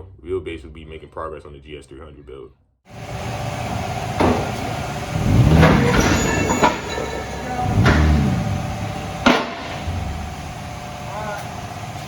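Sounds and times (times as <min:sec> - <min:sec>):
car engine idling and revving: 0:03.0 - 0:12.0.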